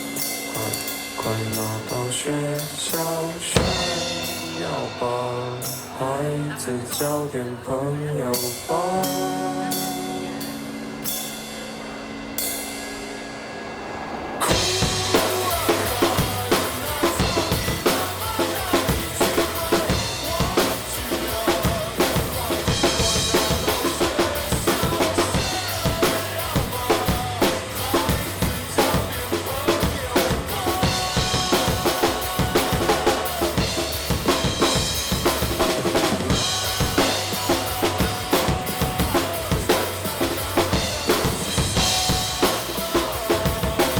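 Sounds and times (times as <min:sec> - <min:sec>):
drum kit beat: 0:00.0 - 0:07.3, 0:08.4 - 0:43.9
rock band playing: 0:00.0 - 0:07.3, 0:08.3 - 0:43.9.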